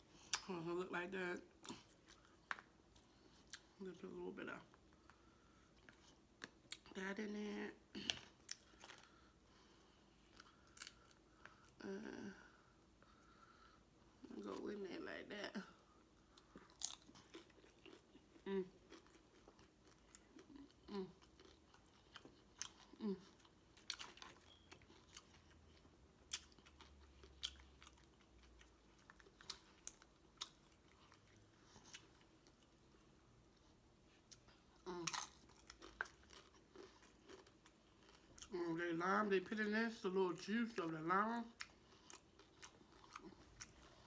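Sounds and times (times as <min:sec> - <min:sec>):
person chewing: 0:08.0 - 0:11.8, 0:16.1 - 0:38.5, 0:41.6 - 0:44.0.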